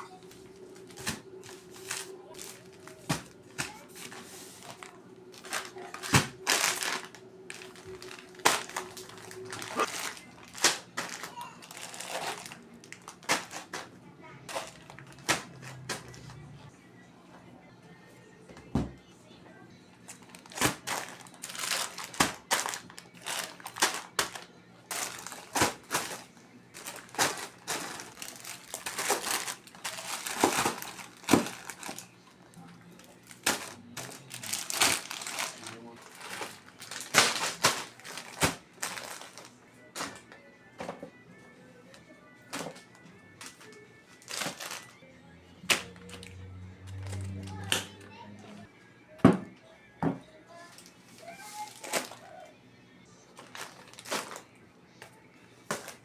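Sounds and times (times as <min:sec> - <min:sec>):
plastic packaging crinkling: 0:00.0 - 0:13.9, 0:14.5 - 0:16.5, 0:20.1 - 0:32.2, 0:33.0 - 0:40.4, 0:42.5 - 0:45.0, 0:50.6 - 0:52.4, 0:53.4 - 0:54.5
items knocking when set down: 0:23.3 - 0:32.0.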